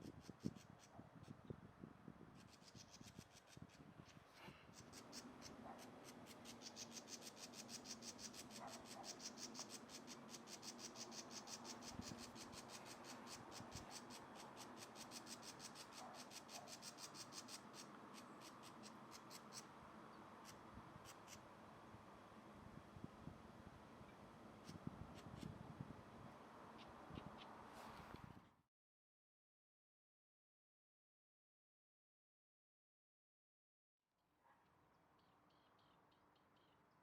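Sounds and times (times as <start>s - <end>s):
woodpecker pecking at wood: 4.8s - 19.6s.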